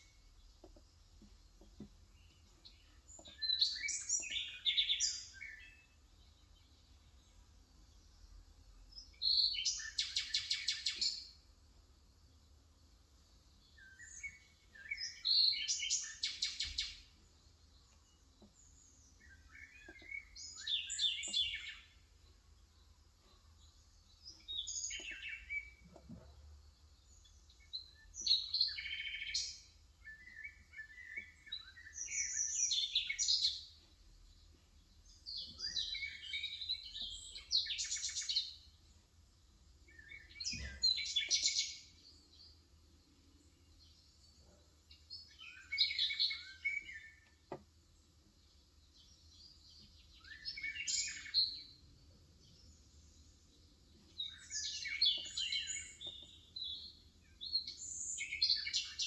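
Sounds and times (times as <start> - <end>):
bird singing with trills: 2.3 - 5.8, 18.6 - 22.0, 27.4 - 33.7, 35.0 - 38.6, 39.9 - 42.3, 49.0 - 51.8, 54.0 - 59.0.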